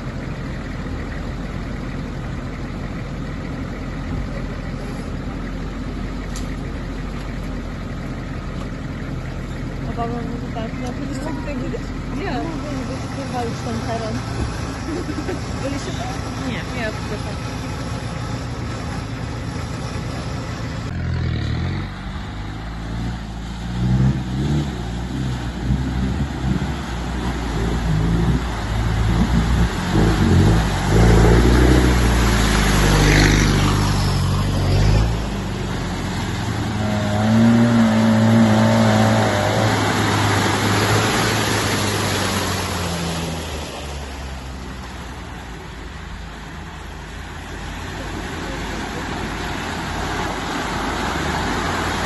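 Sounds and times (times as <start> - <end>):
suv engine revving in mud: 20.0 - 45.1, 47.3 - 52.0.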